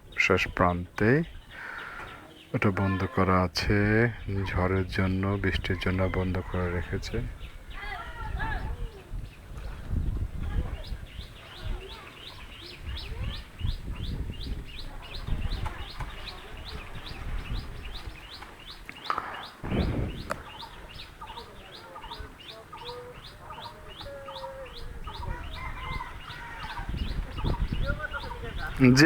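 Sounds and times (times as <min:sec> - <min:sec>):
low rumbling noise: 0:19.6 - 0:21.0.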